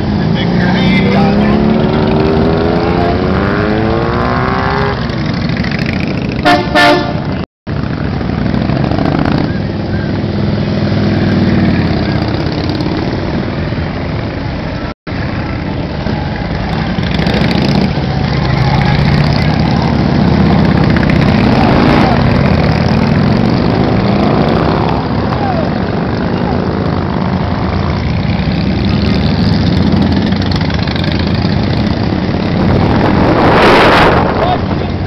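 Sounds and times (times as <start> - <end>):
motorcycles passing by: 0.0 - 35.0
vehicle horn toot: 6.4 - 7.2.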